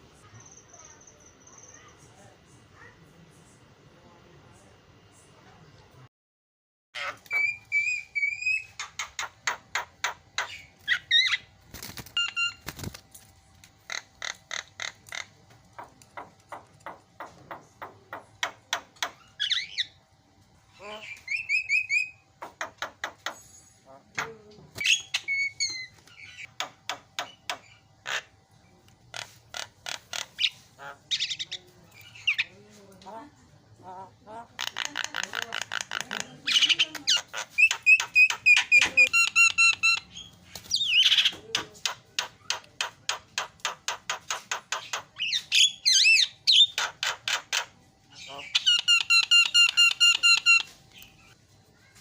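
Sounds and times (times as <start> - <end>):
bird whistled calls and trills: 7.0 - 9.3, 21.1 - 22.2, 24.8 - 26.5, 36.5 - 41.4, 45.2 - 46.9, 48.2 - 51.4.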